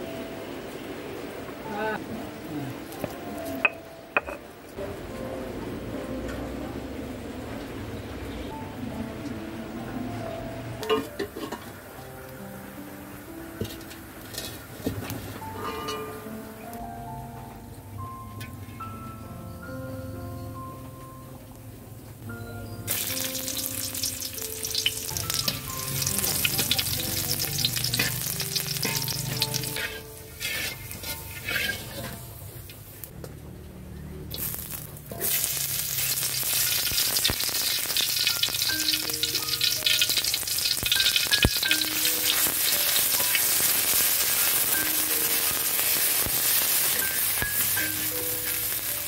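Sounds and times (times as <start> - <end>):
oil sizzling in a wok: 9.9 - 17.7, 22.6 - 33.1, 34.2 - 49.0
metal spatula stirring: 27.4 - 32.4.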